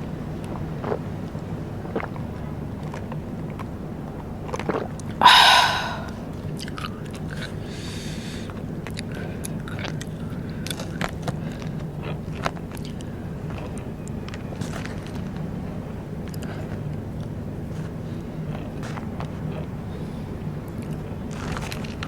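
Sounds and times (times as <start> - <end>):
mouth clicks: 5.2 - 6.2
person chewing crunchy snacks: 8.9 - 13.8, 18.5 - 19.8.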